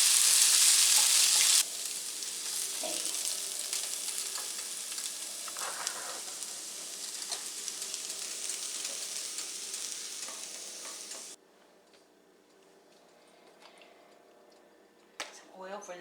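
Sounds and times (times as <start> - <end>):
potatoes sizzling in hot oil: 0.0 - 11.4.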